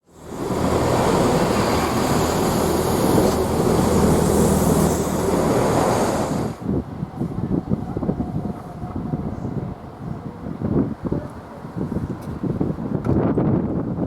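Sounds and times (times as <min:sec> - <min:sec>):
train rumbling past: 0:00.0 - 0:12.2
train wheels hissing: 0:00.1 - 0:06.6.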